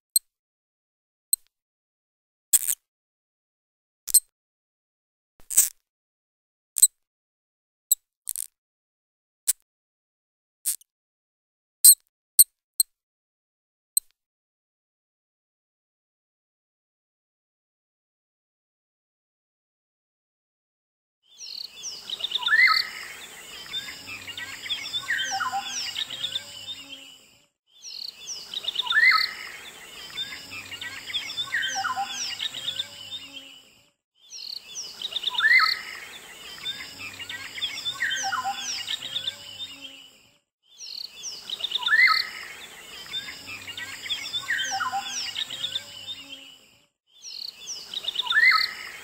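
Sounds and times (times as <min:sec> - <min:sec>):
birds chirping and whistling: 0:21.4 - 0:27.1, 0:27.8 - 0:33.5, 0:34.2 - 0:39.9, 0:40.7 - 0:46.2, 0:47.2 - 0:49.0.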